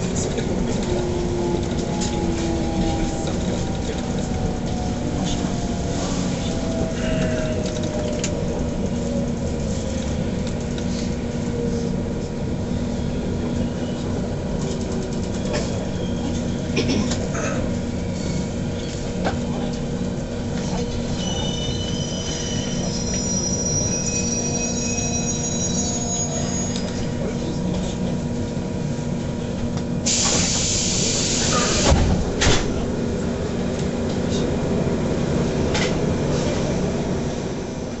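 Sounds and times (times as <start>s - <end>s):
wheels and brakes squealing: 15.2s - 16.8s, 18.0s - 19.0s, 20.6s - 27.2s
air hiss: 30.0s - 32.0s.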